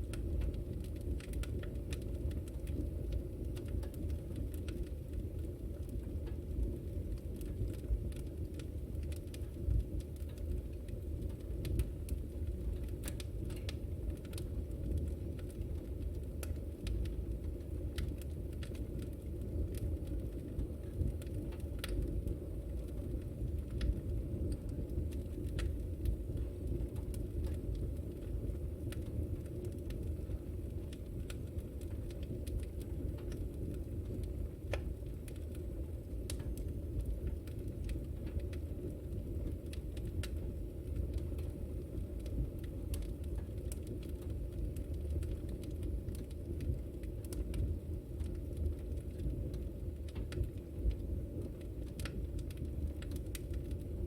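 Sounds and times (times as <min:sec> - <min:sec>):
fire pops and snaps: 0:00.0 - 0:54.0
low rumble of flames: 0:00.0 - 0:54.0
wood fire crackling: 0:00.0 - 0:54.0.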